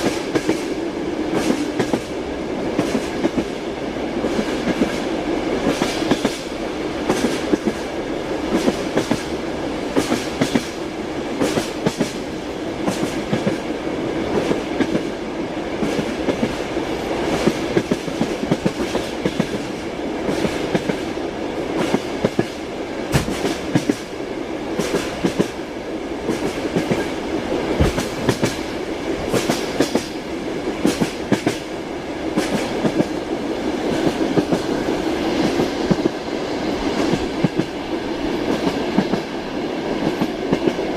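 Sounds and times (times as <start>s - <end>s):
train wheels clacking over rail joints: 0.0s - 2.1s, 5.6s - 6.5s, 8.5s - 10.8s, 11.4s - 13.6s, 15.8s - 21.1s, 21.7s - 24.2s, 24.8s - 25.6s, 26.2s - 27.2s, 27.8s - 30.2s, 30.8s - 31.7s, 32.3s - 33.2s.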